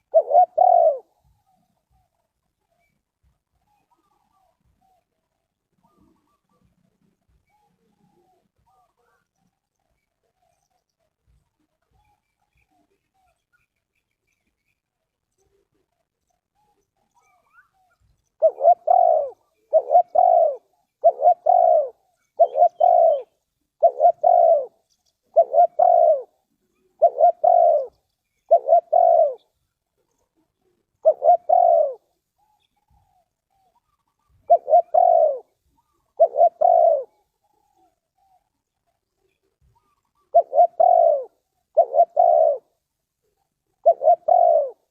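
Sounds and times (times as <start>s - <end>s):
dove cooing: 0.0s - 2.1s, 3.6s - 5.1s, 5.7s - 9.2s, 18.4s - 44.9s.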